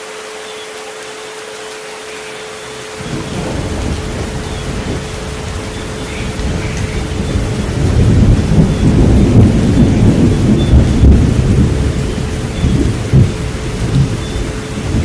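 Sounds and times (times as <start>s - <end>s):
steady rain: 0.0s - 15.0s
rolling thunder rumble: 3.0s - 15.0s.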